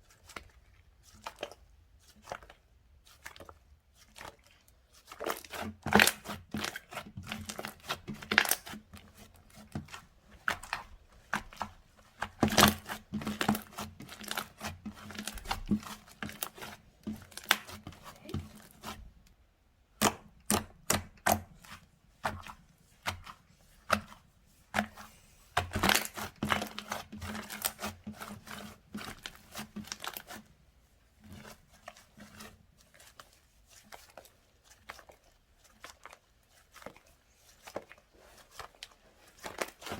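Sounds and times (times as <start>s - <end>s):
slime popping and crackling: 25.6s - 27.9s.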